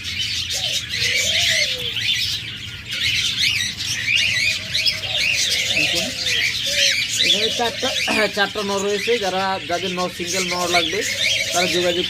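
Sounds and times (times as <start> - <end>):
caged birds chirping: 0.0 - 12.0.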